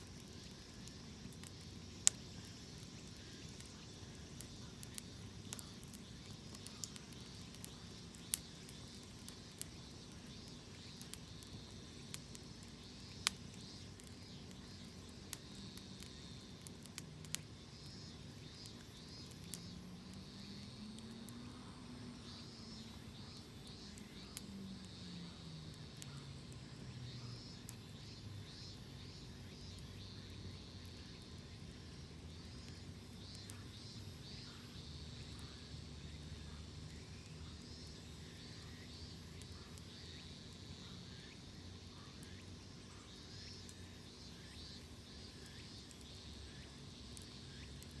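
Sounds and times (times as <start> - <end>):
insects chirping: 0.0 - 48.0
wood fire crackling: 0.0 - 48.0.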